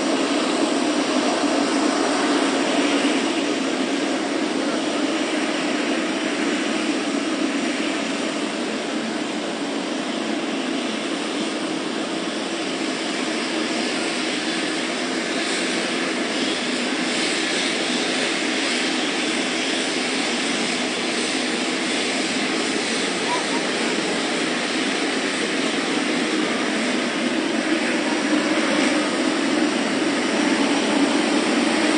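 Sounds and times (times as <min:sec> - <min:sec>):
jet airliner engine rumble: 0:00.0 - 0:31.9.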